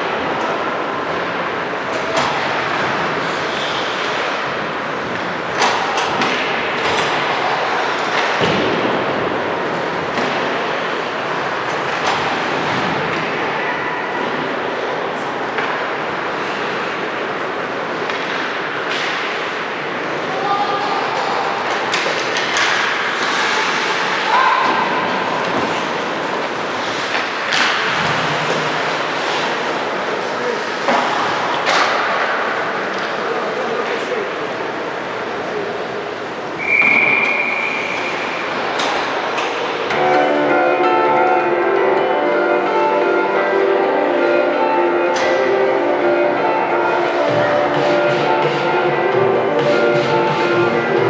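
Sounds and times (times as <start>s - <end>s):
skates on ice: 21.1s - 34.0s.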